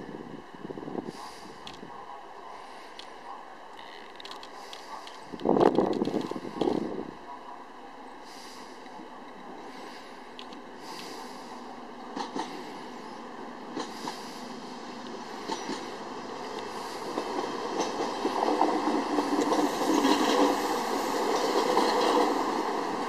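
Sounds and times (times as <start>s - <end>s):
wheels clicking over rail joints: 3.7s - 6.9s, 12.0s - 12.8s, 13.7s - 14.4s, 15.0s - 22.9s
train rumbling past: 4.4s - 23.0s.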